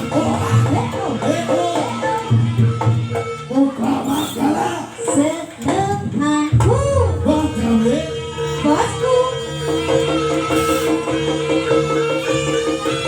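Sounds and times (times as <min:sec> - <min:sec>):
drum beat: 0:00.0 - 0:03.6, 0:06.5 - 0:13.0
steady held notes: 0:00.0 - 0:13.0.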